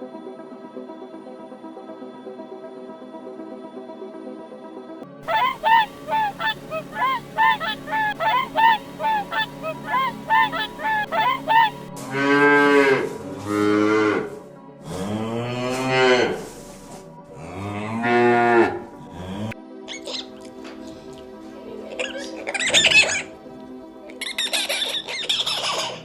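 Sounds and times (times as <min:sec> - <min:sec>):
geese honking: 0:05.2 - 0:11.9
cow mooing: 0:17.4 - 0:19.5.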